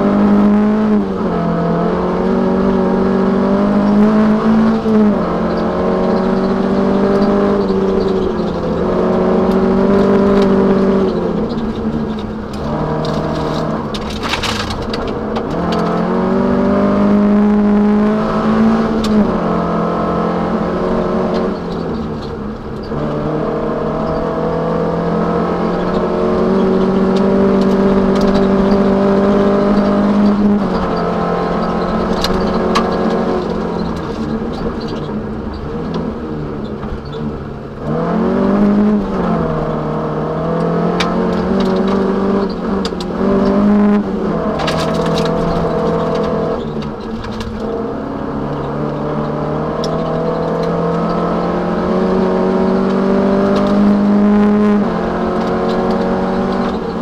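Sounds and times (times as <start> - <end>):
car engine revving hard: 0.0 - 57.0
car body ticks and knocks: 4.0 - 16.1, 25.7 - 38.1, 40.5 - 53.9, 54.8 - 57.0.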